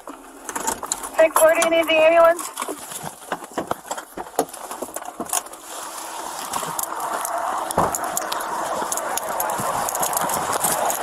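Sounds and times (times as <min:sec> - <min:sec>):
vehicle running noise: 0:00.0 - 0:11.0
heavy thump: 0:07.8 - 0:08.0.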